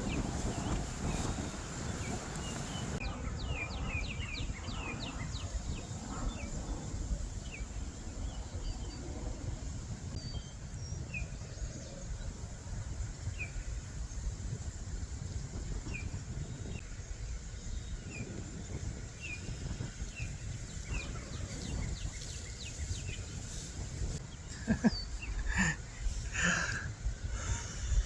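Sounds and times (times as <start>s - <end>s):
small birds chirping: 0.0s - 9.2s, 15.9s - 28.0s.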